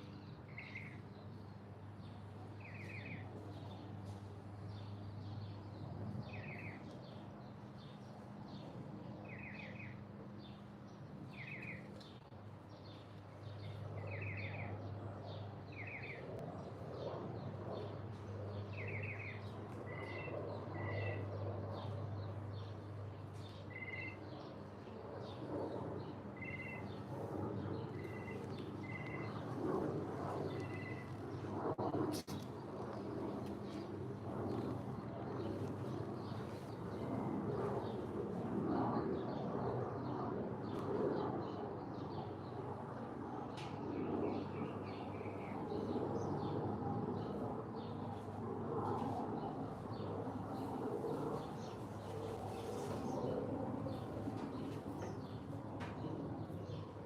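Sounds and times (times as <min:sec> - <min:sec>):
steady low hum: 0:00.0 - 0:57.0
small bird chirping: 0:23.7 - 0:24.2, 0:26.4 - 0:27.0, 0:27.9 - 0:29.4, 0:30.5 - 0:31.2.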